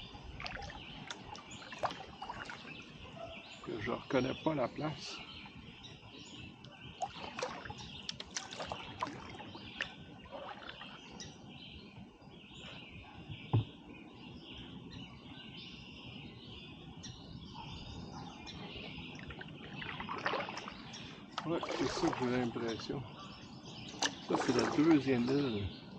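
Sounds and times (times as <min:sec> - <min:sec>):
water: 0:00.0 - 0:13.9, 0:17.6 - 0:25.9
birds chirping: 0:00.0 - 0:25.9
sharp splashy clicks: 0:07.0 - 0:09.2.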